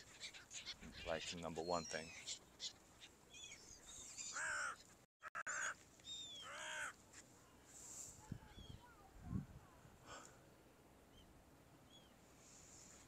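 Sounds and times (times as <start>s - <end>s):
bird calling: 0.0s - 7.0s.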